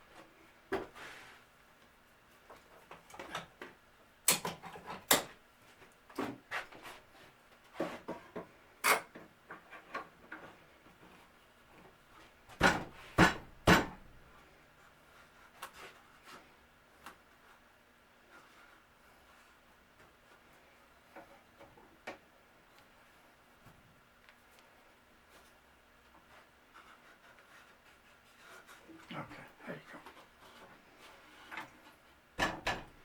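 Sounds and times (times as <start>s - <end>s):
wooden pieces knocking and clunking: 32.4s - 33.0s.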